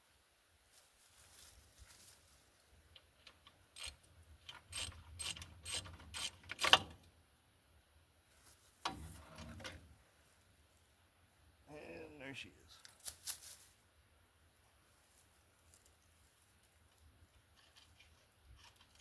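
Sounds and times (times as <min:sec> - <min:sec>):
socket ratchet clicking: 0:03.3 - 0:06.9.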